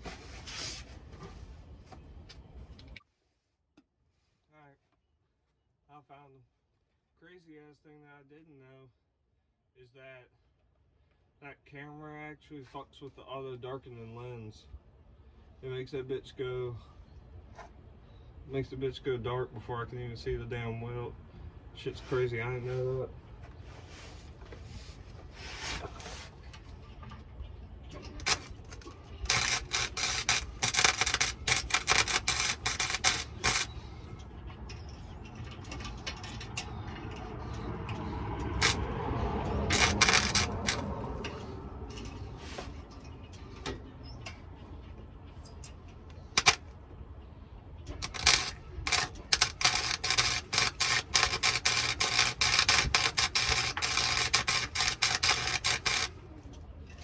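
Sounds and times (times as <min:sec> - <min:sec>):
welding arc crackling: 0:28.1 - 0:33.8, 0:38.5 - 0:38.9, 0:39.6 - 0:40.9, 0:46.4 - 0:46.6, 0:48.0 - 0:56.2
dull sound: 0:28.2 - 0:33.8, 0:39.6 - 0:40.9, 0:48.0 - 0:56.2.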